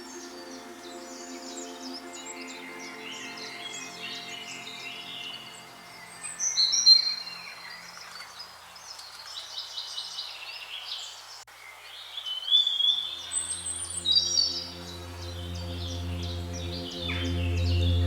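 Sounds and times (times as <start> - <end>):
low music drone: 0.0 - 8.0, 13.0 - 18.0
birds singing and chirping: 12.0 - 18.0.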